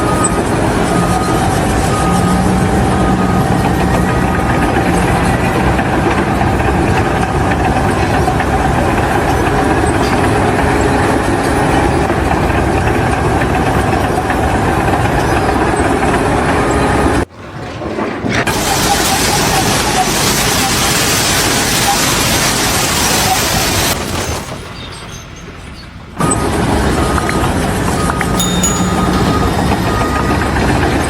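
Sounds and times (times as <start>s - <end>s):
loud heavy machinery engine: 0.0s - 17.3s.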